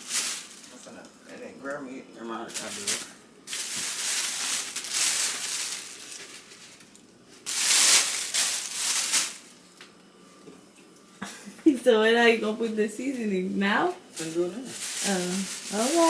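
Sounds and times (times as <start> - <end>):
chicken rubbed in flour rustling: 3.5 - 6.8, 14.2 - 16.0.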